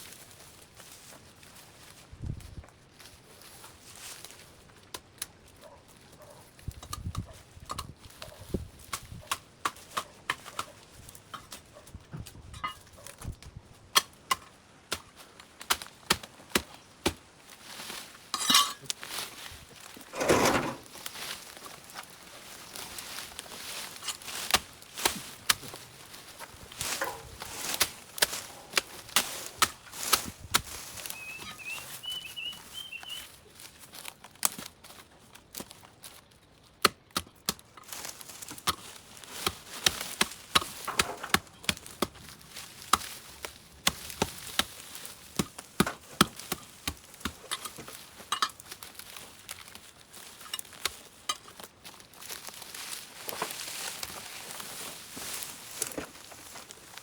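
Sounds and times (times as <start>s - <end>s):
blade chopping through vines: 37.2s - 47.7s.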